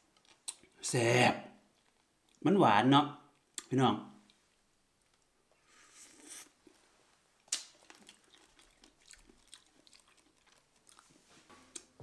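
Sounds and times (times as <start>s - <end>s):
wet chewing clicks: 7.4s - 11.9s
berries crunching when bitten: 7.4s - 12.0s.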